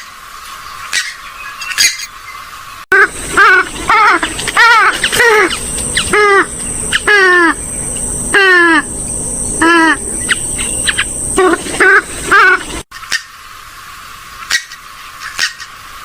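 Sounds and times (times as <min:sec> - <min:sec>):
steady high whine: 0:02.9 - 0:12.9
waterbird short falling calls: 0:03.0 - 0:07.6.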